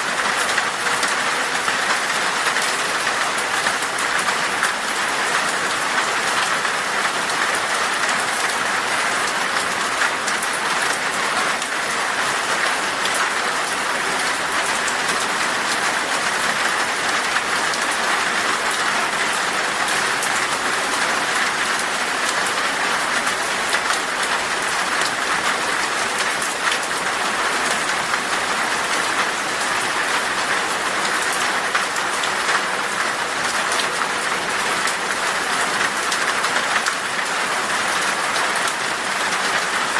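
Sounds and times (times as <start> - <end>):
heavy rain on glass: 0.0 - 39.9.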